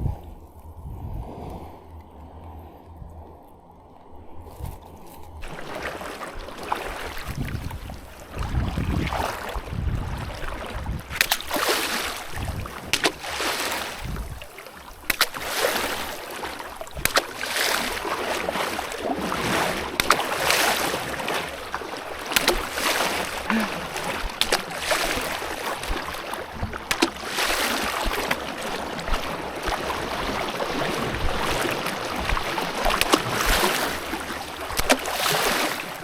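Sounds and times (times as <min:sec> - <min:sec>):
water splashing and sloshing: 0:00.0 - 0:36.0.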